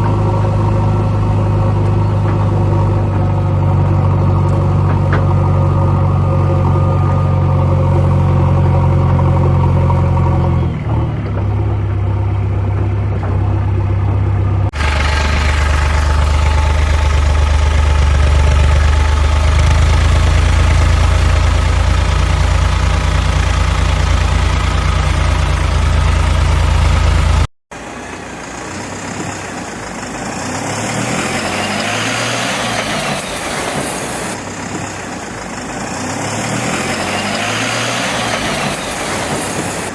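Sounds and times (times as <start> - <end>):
tractor diesel engine: 0.0 - 39.9.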